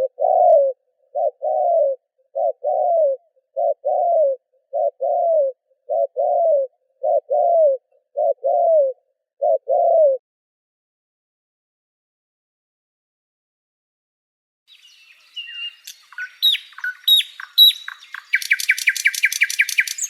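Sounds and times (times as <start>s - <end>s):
dove cooing: 0.0s - 10.2s.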